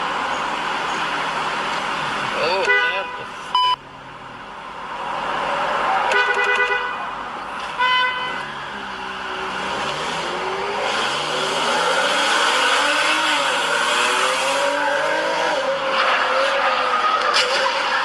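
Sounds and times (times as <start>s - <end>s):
road and traffic noise: 0.0s - 18.0s
car horn honking: 2.4s - 3.8s, 6.1s - 8.6s
high beep: 3.5s - 3.8s.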